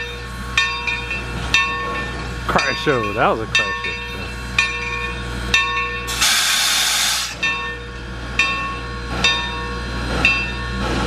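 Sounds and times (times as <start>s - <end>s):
locomotive bell ringing: 0.0s - 6.4s, 7.3s - 11.0s
steam hissing: 6.1s - 7.4s.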